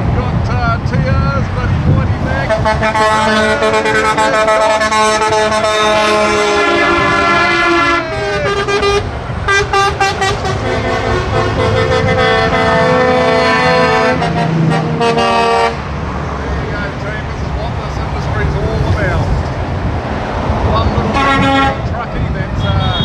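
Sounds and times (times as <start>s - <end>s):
trucks passing: 0.0s - 23.0s
truck air horn blasts: 2.4s - 15.9s, 21.0s - 21.9s, 22.6s - 23.0s.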